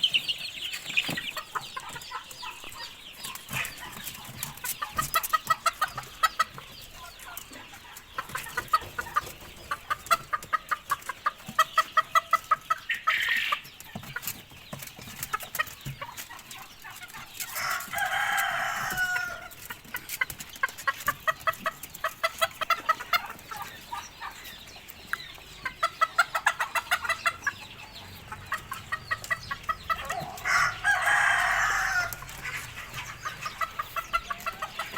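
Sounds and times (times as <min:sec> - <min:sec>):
chickens clucking: 0:00.0 - 0:34.9
rooster crowing: 0:17.6 - 0:19.5, 0:30.0 - 0:32.3.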